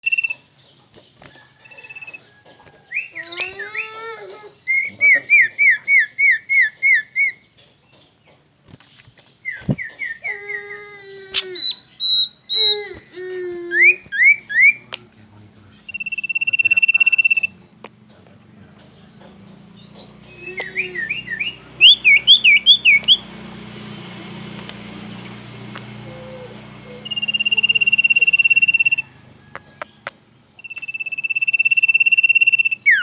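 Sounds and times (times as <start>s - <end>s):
songbird whistled notes: 0.0s - 0.4s, 1.4s - 4.0s, 4.7s - 7.4s, 9.4s - 10.8s, 11.4s - 13.0s, 13.8s - 15.0s, 15.8s - 17.7s, 19.7s - 33.0s.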